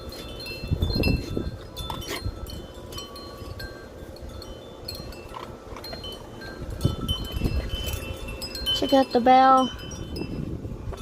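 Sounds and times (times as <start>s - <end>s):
wind chime ringing: 0.0s - 11.0s.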